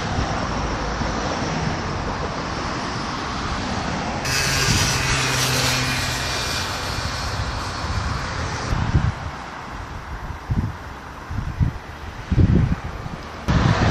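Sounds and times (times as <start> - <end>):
vehicle passing by: 0.0 - 9.8
road traffic: 0.0 - 13.9
wind buffeting microphone: 0.0 - 13.9.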